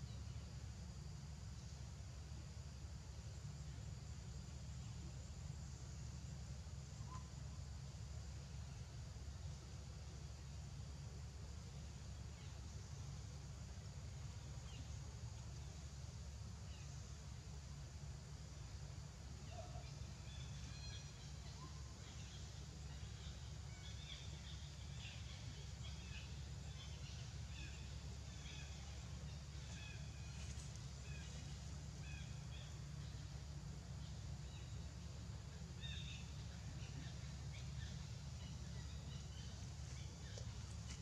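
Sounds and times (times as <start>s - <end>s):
small birds chirping: 19.4s - 41.0s.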